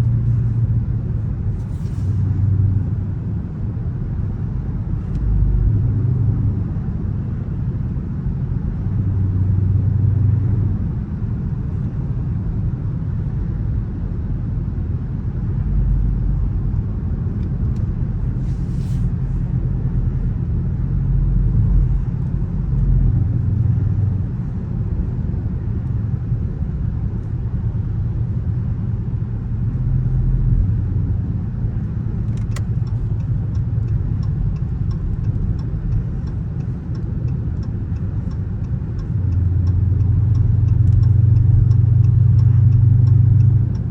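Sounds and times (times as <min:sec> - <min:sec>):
car engine rumble: 0:00.0 - 0:43.9
road noise: 0:00.0 - 0:43.9
light ticks: 0:32.3 - 0:43.9.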